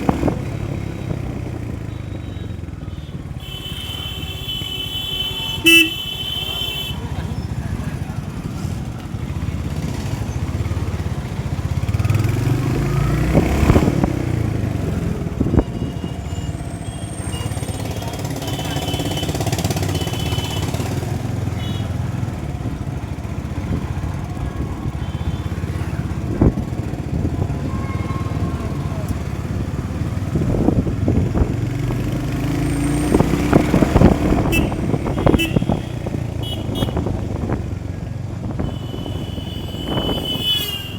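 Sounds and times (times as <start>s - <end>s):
motorcycle engine running: 0.0s - 40.9s
wind rumble on microphone: 29.6s - 32.1s, 33.0s - 40.9s.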